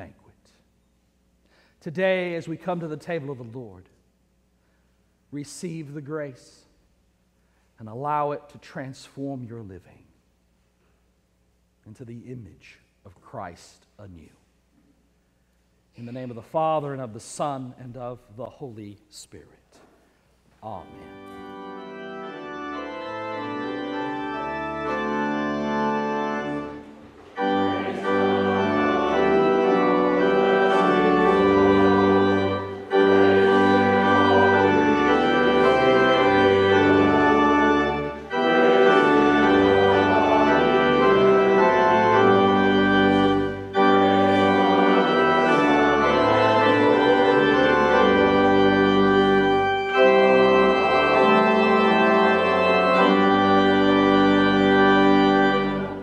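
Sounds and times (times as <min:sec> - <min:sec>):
organ playing chords: 0:01.5 - 0:03.8, 0:20.6 - 0:56.0.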